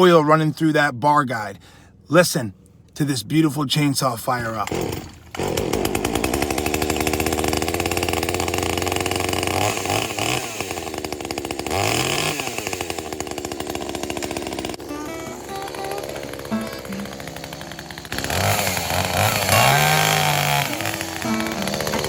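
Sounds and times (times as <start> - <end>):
chainsaw running and revving: 4.6 - 22.0.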